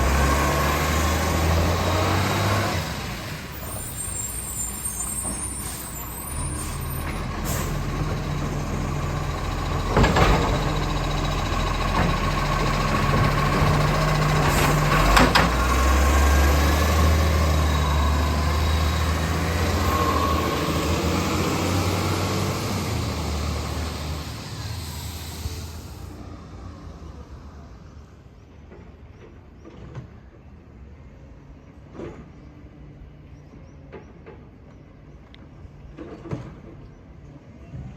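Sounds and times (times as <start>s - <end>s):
air brakes hissing: 3.5s - 8.7s, 22.8s - 26.3s
garbage truck engine running: 6.2s - 25.8s.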